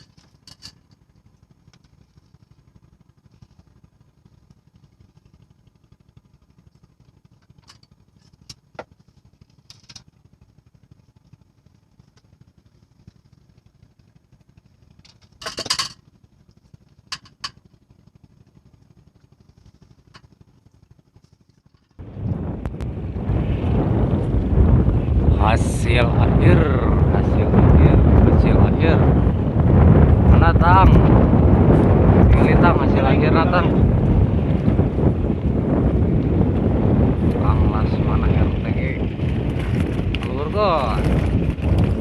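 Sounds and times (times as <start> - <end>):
steady low hum: 0.0 - 42.0
wind noise on microphone: 22.0 - 42.0.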